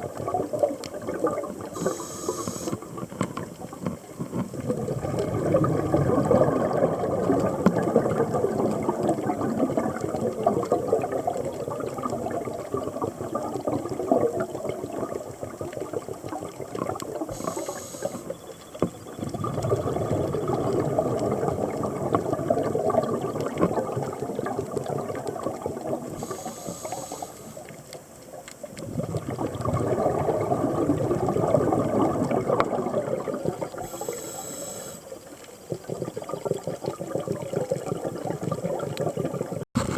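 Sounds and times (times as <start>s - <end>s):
scuba regulator exhalation bubbling: 0.0s - 27.9s, 28.6s - 39.9s
hissing inhalation: 1.7s - 2.8s, 17.3s - 18.4s, 26.1s - 27.7s, 33.8s - 35.2s.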